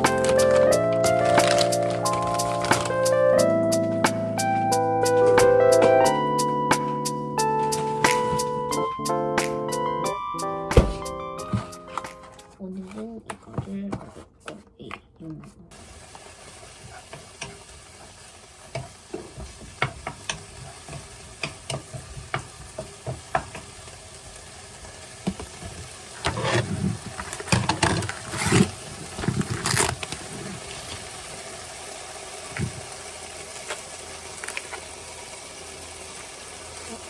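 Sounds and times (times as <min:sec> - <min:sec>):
food sizzling in a frying pan: 0:00.0 - 0:09.0, 0:15.7 - 0:37.0
utensil stirring and tapping pan: 0:15.4 - 0:23.9, 0:25.2 - 0:29.3.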